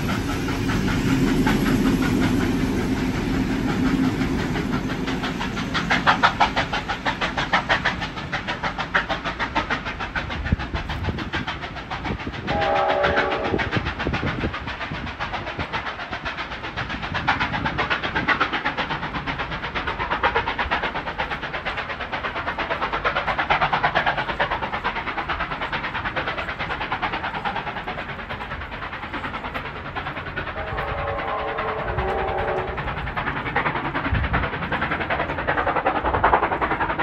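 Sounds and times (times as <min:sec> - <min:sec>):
train wheels clattering: 0:00.0 - 0:37.0
train whistle chord: 0:12.5 - 0:13.6, 0:30.6 - 0:32.8.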